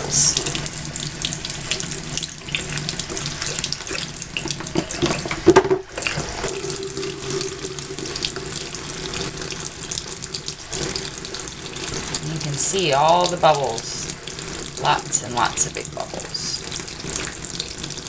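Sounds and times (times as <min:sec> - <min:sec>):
bath pouf worked with soap: 0:00.0 - 0:18.0
tap water running into sink: 0:00.0 - 0:18.0.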